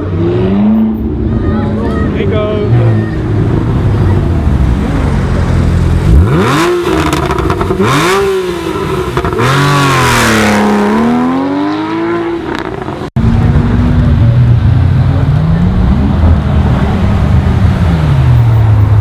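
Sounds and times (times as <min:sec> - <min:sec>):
car engine revving hard: 0:03.6 - 0:18.8
low engine rumble: 0:12.9 - 0:19.0.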